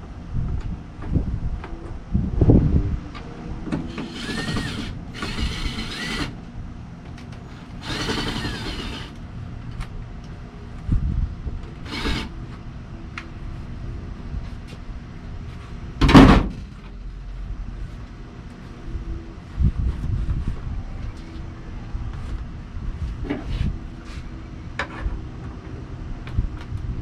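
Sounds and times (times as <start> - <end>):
power drill motor whine: 3.9 - 6.4, 7.5 - 9.2, 11.8 - 12.3.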